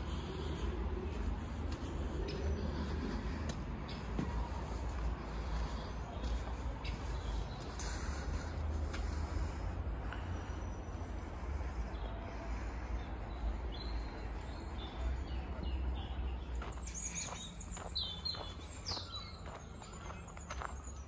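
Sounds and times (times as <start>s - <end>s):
steady low rumble: 0.0s - 16.8s
birds chirping and calling: 0.0s - 21.0s.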